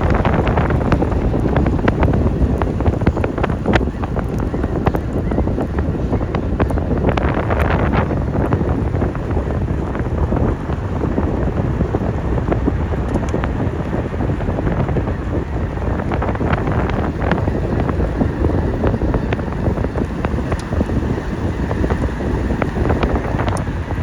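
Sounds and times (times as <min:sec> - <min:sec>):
scattered crackles: 0:00.0 - 0:24.0
wind buffeting microphone: 0:00.0 - 0:24.0.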